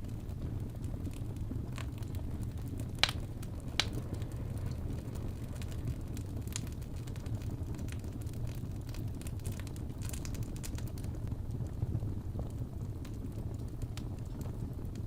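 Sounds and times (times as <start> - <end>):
wood crackling pops: 0.0 - 11.1
fire rumbling: 0.0 - 15.0.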